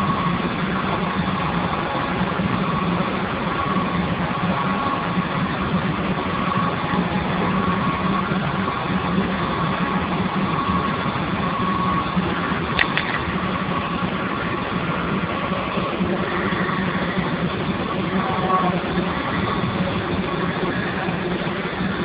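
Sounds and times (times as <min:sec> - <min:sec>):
steam boiler running: 0:00.0 - 0:22.0
sharp click: 0:12.8 - 0:13.2.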